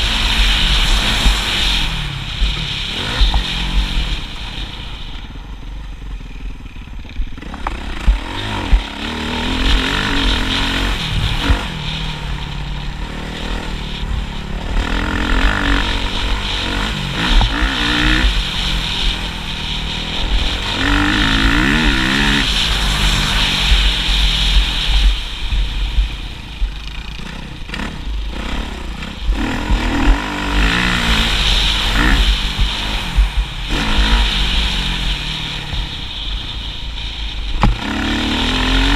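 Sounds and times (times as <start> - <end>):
low rumble: 0.0 - 38.9
motocross bike engine revving: 0.0 - 38.9.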